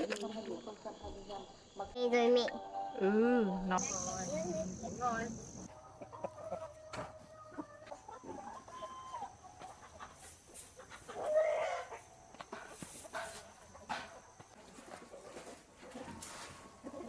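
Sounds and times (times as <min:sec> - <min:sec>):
chickens clucking: 0:03.8 - 0:17.0.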